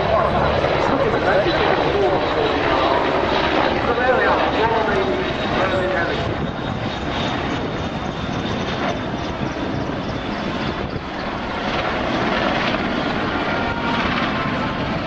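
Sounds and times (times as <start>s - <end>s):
helicopter rotor and turbine noise: 0.0s - 15.0s.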